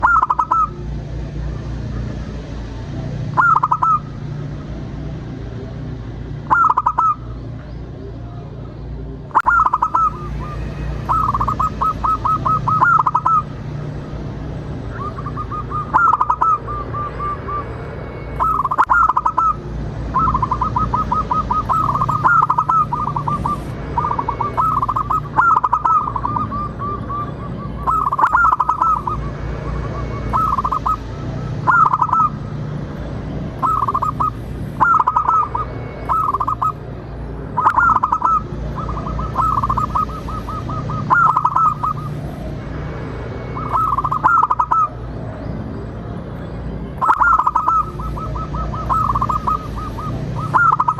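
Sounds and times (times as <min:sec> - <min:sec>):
doves cooing: 0:00.0 - 0:00.8, 0:03.2 - 0:04.2, 0:06.4 - 0:07.4, 0:09.3 - 0:17.7, 0:18.4 - 0:32.5, 0:33.4 - 0:42.3, 0:43.5 - 0:45.0, 0:47.0 - 0:50.9.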